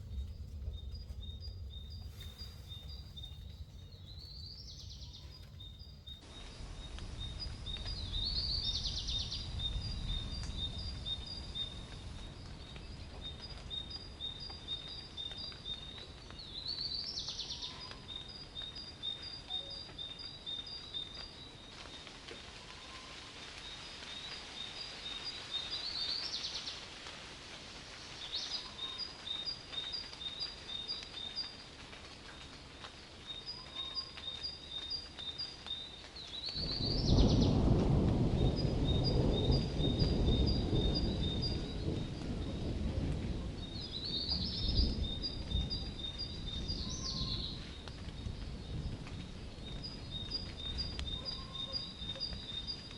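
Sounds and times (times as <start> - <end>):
bird chirping: 0.0 - 11.8, 33.2 - 42.6, 43.6 - 47.8, 49.6 - 52.9
distant thunder rumble: 0.0 - 19.0, 36.1 - 52.9
rain hissing: 0.0 - 52.9.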